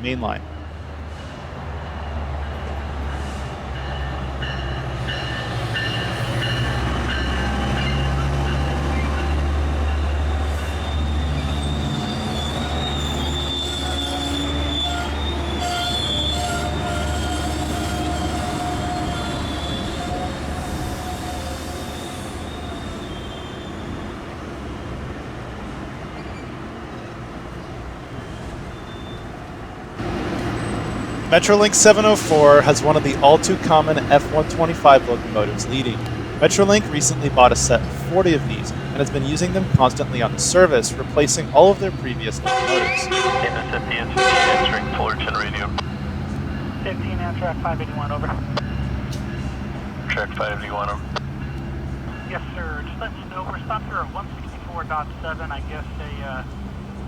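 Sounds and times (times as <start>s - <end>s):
diesel locomotive engine hum: 0.0s - 57.0s
high-pitched wheel squeal: 10.0s - 24.2s.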